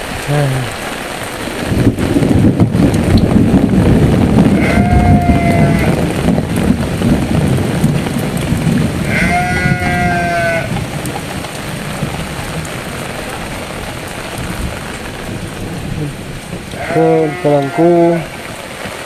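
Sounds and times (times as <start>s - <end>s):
heavy rain pouring: 0.0s - 19.0s
sheep bleating: 4.6s - 6.0s, 9.0s - 10.7s, 16.8s - 18.3s.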